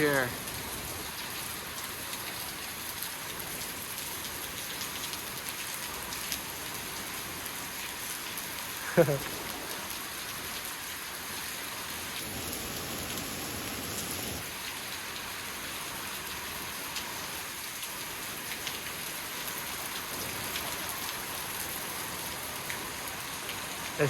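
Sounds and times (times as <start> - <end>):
waterfall hissing: 0.0 - 0.9, 8.8 - 10.1, 11.3 - 14.5.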